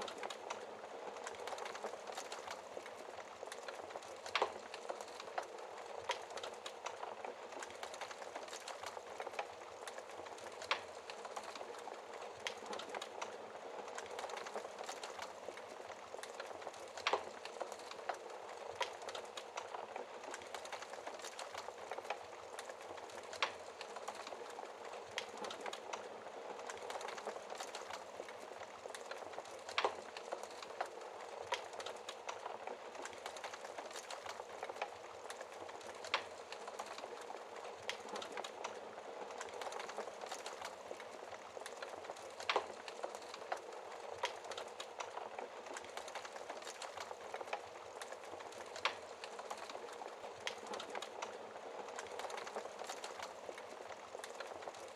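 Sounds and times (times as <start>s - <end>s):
fire popping: 0.0s - 54.9s
wood fire crackling: 0.0s - 54.9s.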